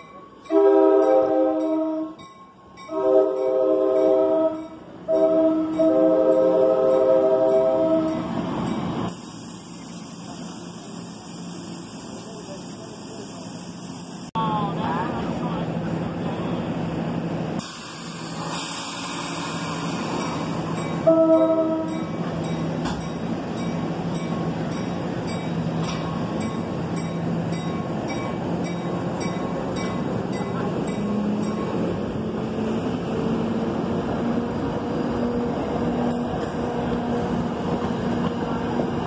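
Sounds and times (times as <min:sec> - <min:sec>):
train rumbling past: 0:00.0 - 0:39.0
train horn toot: 0:00.5 - 0:02.2, 0:02.9 - 0:08.2, 0:21.0 - 0:22.1.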